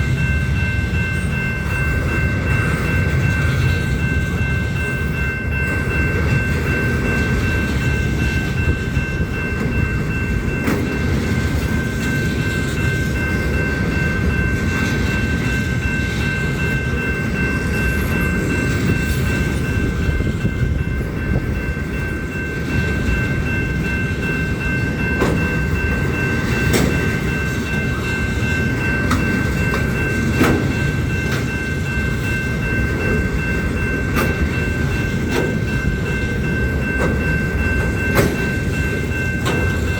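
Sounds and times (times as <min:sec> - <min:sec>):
train cars rumbling past: 0:00.0 - 0:39.9
wheels clacking over rail joints: 0:23.8 - 0:39.9.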